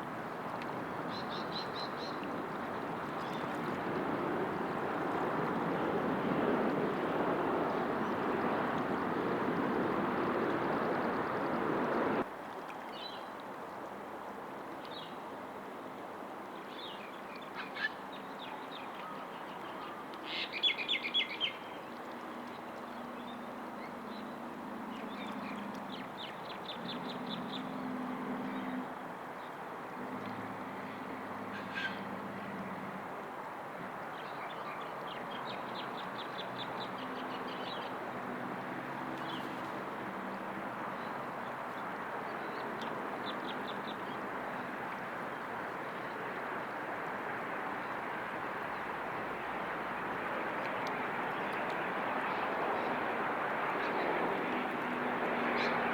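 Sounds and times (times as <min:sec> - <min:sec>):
loud steady rushing noise: 0:06.0 - 0:12.2.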